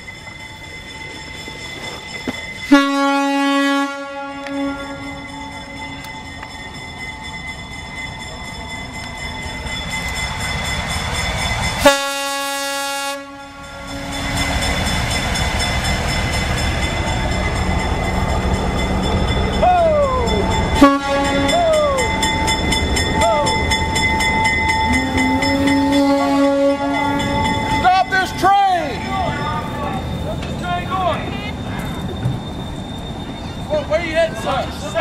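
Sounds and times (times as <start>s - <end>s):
passenger train rumbling past: 0.0s - 35.0s
train horn blast: 2.7s - 5.3s, 11.8s - 14.2s, 20.8s - 21.6s, 24.9s - 27.5s.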